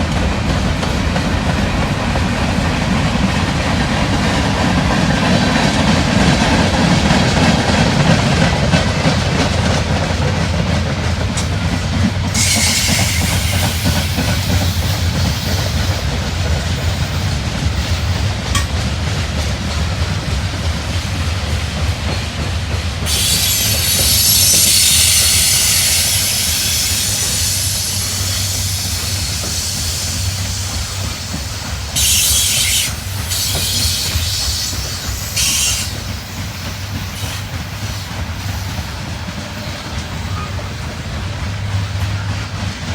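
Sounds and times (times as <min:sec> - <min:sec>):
train cars rumbling past: 0:00.0 - 0:42.9
wheels clickety-clack over rails: 0:00.0 - 0:42.9
high-pitched wheel squeal: 0:12.4 - 0:15.7.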